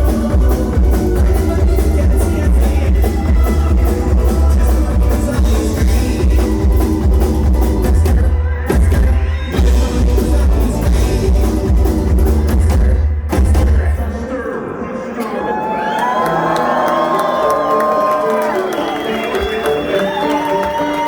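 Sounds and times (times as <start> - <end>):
live band playing rock: 0.0 - 14.1, 16.6 - 21.0.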